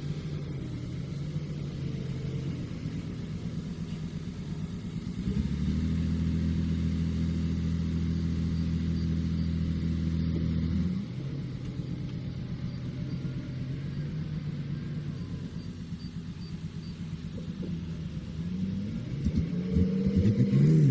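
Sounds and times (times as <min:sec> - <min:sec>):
heavy vehicle engine running: 0:00.0 - 0:20.9.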